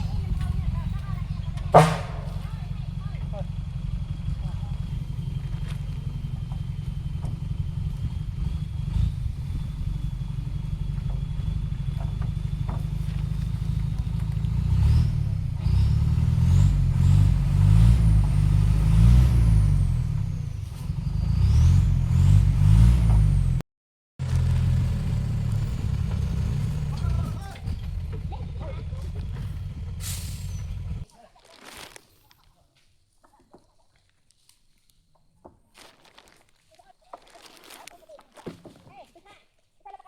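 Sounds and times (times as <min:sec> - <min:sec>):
vehicle engine running and revving: 0:00.0 - 0:23.6, 0:24.2 - 0:31.0.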